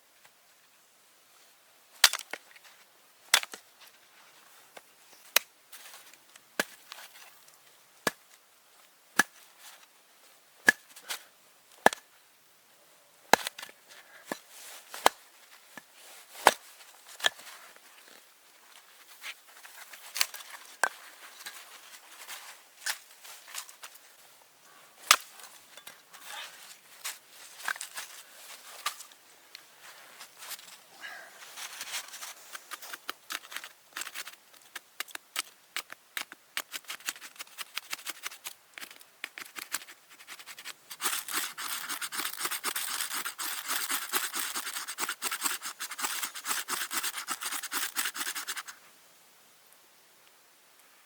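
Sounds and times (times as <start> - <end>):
wood chopping strikes: 9.2 - 9.4, 13.3 - 13.7.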